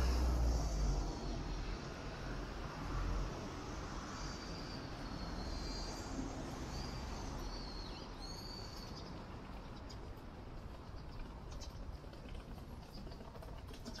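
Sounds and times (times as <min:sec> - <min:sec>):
city traffic hum: 0:00.0 - 0:14.0
small birds chirping: 0:04.2 - 0:10.2.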